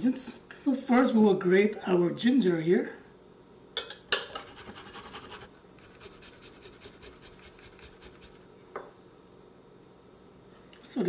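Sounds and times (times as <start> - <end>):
ginger being grated: 4.4 - 8.4.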